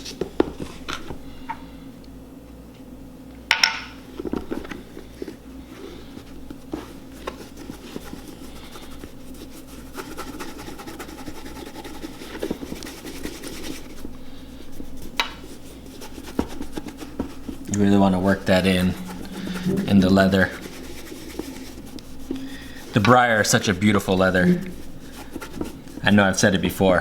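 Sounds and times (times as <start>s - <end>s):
rag rubbing leather boot: 6.0s - 26.9s.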